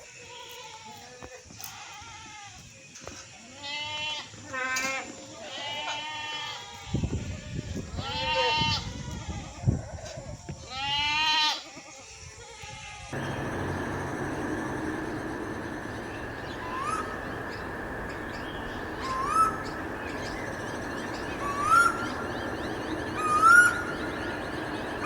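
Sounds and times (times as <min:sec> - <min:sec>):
low rustling: 0:13.2 - 0:25.0.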